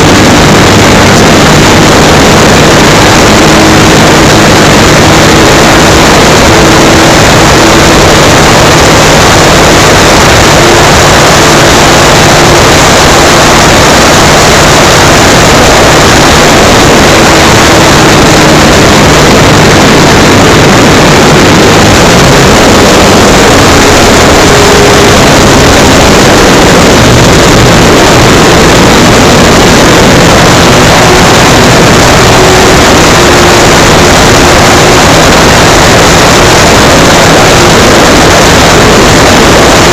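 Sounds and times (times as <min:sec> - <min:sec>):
model plane electric motor: 0:00.0 - 0:39.9
wind rush: 0:00.0 - 0:39.9.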